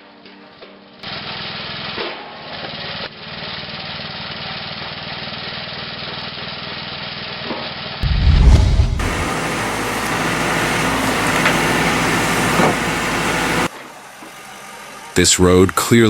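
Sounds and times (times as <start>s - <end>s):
heavy low rumble: 8.0s - 9.5s
machine engine running: 8.0s - 13.7s.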